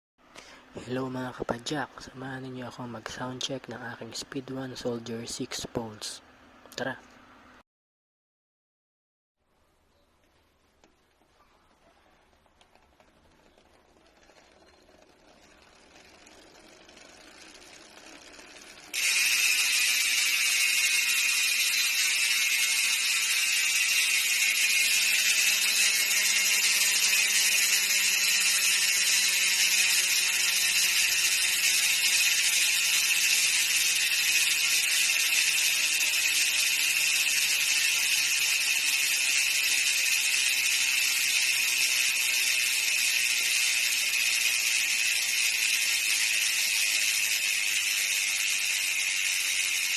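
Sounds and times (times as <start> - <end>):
bicycle hub ratchet buzz: 12.7 - 49.9.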